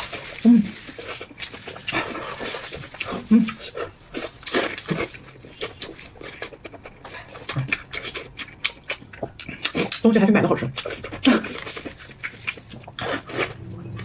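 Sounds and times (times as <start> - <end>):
chewing and lip-smacking: 0.0 - 14.0
brief low hum: 13.5 - 14.0.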